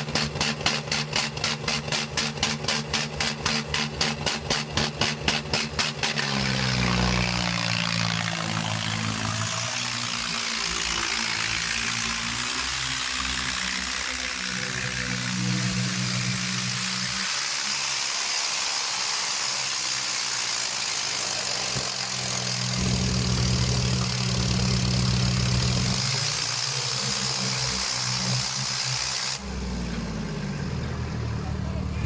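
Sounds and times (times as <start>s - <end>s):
loud steady hiss: 12.9s - 29.7s
tractor diesel engine running: 20.8s - 32.0s.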